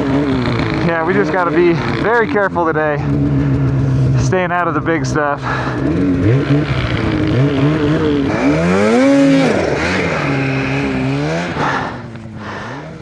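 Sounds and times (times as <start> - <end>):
snowmobile engine revving: 0.0 - 13.0.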